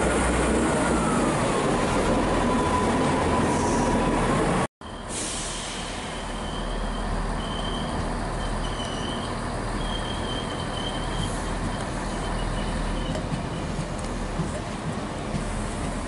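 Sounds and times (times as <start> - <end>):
locomotive engine rumble: 0.0 - 16.0
wheel noise on rails: 6.1 - 16.0.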